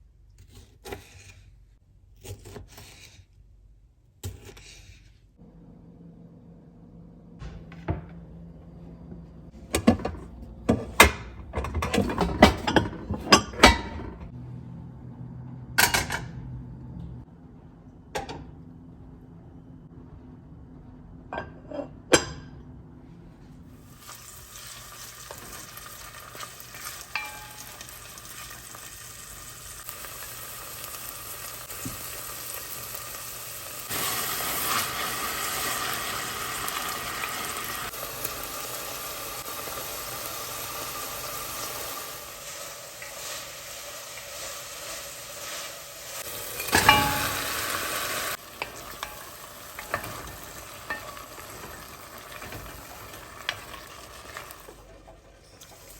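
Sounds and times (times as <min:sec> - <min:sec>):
food sizzling in a frying pan: 0:23.9 - 0:54.8.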